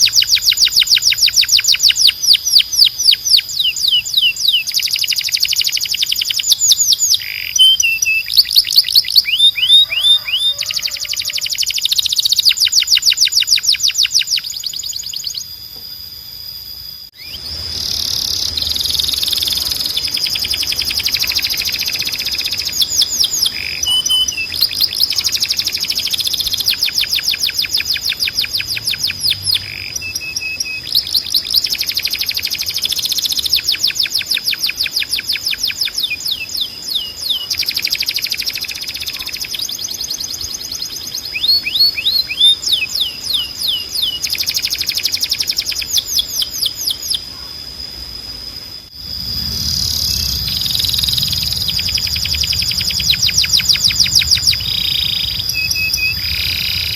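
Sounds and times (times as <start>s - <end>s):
canary singing trills: 0.0s - 15.8s, 17.1s - 47.8s, 48.7s - 56.9s
high whistling tone: 48.9s - 56.9s
low rumble: 48.9s - 56.9s.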